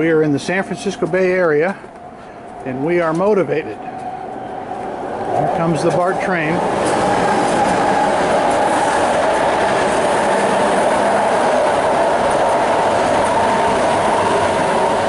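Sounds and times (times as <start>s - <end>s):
train wheel and rail noise: 0.0s - 15.0s.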